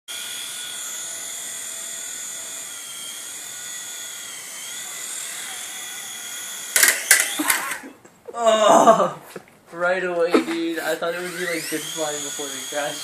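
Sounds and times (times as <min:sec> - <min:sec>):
toy helicopter motor whine: 0:00.1 - 0:07.9, 0:10.8 - 0:13.0.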